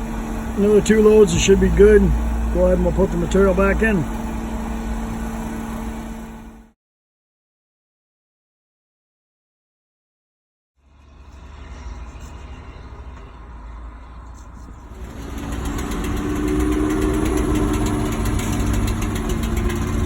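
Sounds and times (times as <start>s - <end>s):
excavator diesel engine running: 0.0s - 6.7s, 11.1s - 20.0s.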